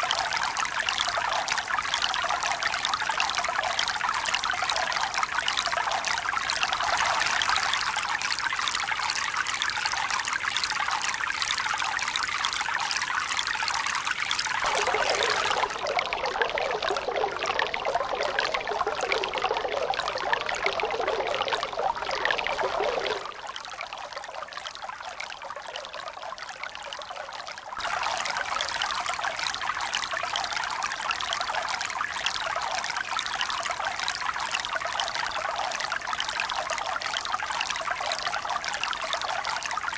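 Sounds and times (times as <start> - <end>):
rushing pouring water: 0.0 - 17.6, 27.8 - 36.0.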